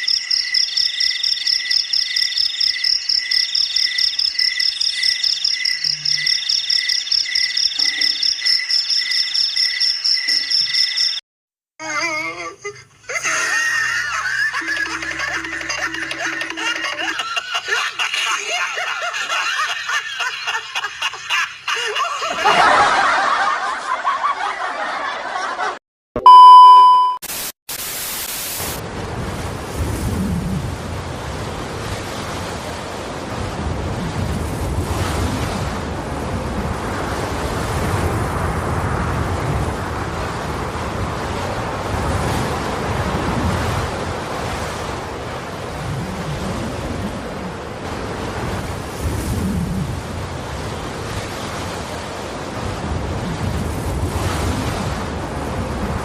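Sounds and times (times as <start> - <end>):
loud steady beep: 0.0 - 11.2, 26.2 - 27.2
sea and boat rumble: 11.8 - 24.9, 28.8 - 56.0
wind rushing over microphone: 28.8 - 56.0.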